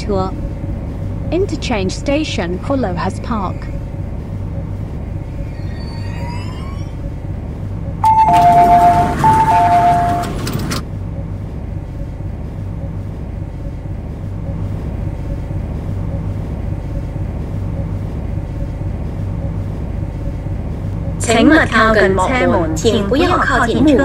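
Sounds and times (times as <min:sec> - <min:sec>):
train low pulsing hum: 0:00.0 - 0:24.0
two-tone door chime: 0:08.0 - 0:10.8.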